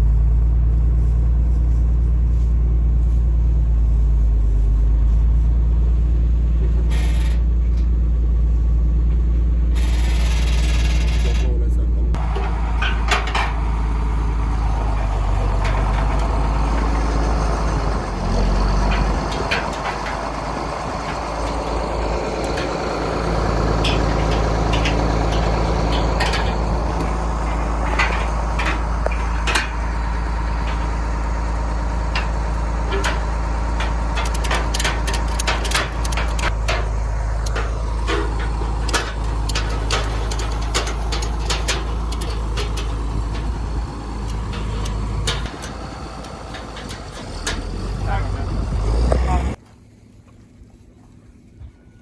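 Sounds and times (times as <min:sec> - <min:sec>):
vehicle engine running: 0:00.0 - 0:52.0
knocks and rattles: 0:09.0 - 0:49.6.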